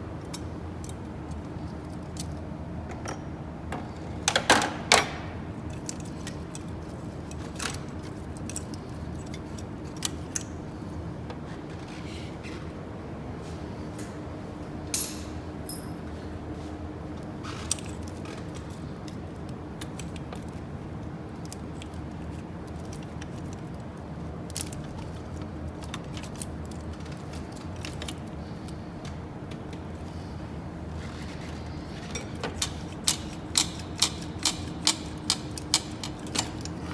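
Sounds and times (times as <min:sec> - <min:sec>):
metallic clicks of hand tools: 0:32.6 - 0:36.8.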